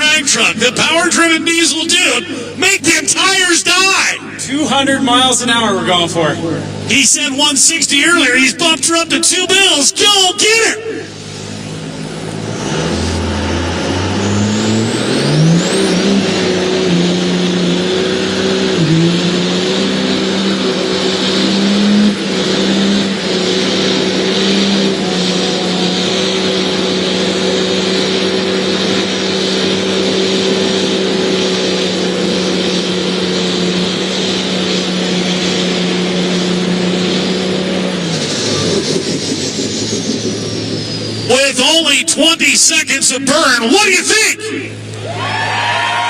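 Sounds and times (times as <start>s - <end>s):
diesel truck engine at high revs: 0.0s - 46.0s
spinning tyres hissing: 10.9s - 42.0s.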